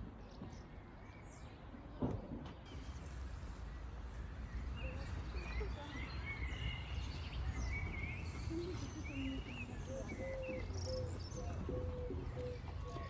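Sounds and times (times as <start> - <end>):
small birds chirping: 2.7 - 13.0.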